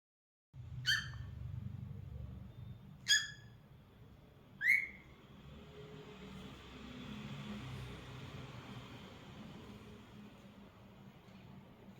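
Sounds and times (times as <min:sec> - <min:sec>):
cockatiel whistled calls: 0:00.8 - 0:01.3, 0:03.0 - 0:03.6, 0:04.6 - 0:05.0.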